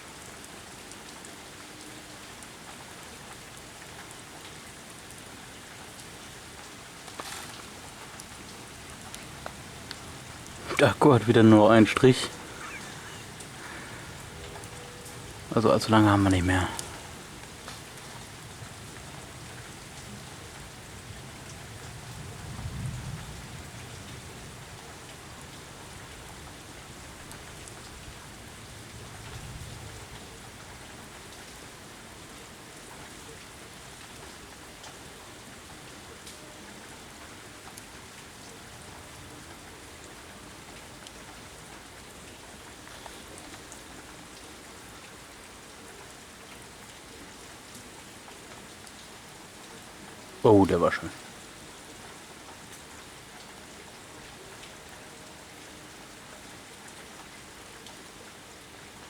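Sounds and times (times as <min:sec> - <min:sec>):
rain falling: 0:00.0 - 0:59.0
low rumble of thunder: 0:16.8 - 0:30.9.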